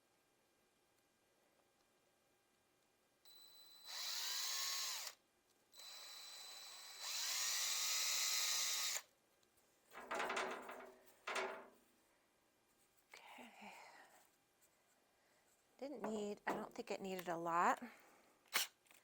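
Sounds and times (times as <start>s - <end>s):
power drill boring into wood: 3.3s - 5.2s, 5.8s - 9.0s.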